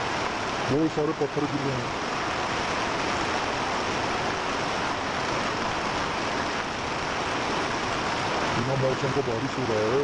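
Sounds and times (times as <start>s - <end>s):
heavy rain: 0.0s - 10.0s.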